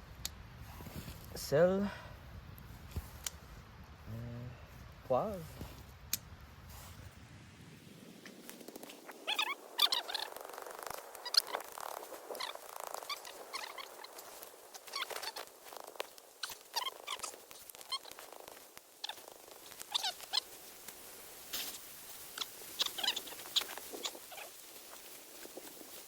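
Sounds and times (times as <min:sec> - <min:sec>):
campfire crackling and popping: 0:05.4 - 0:07.3, 0:08.0 - 0:26.0.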